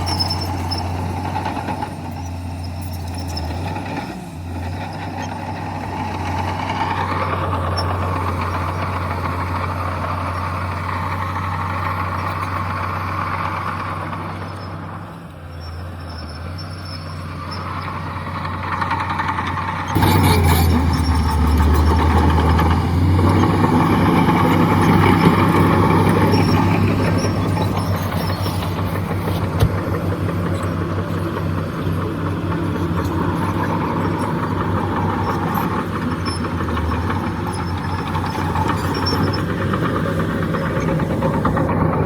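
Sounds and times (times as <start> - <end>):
diesel machinery engine drone: 0.0 - 42.0
rattling clatter: 16.9 - 42.0.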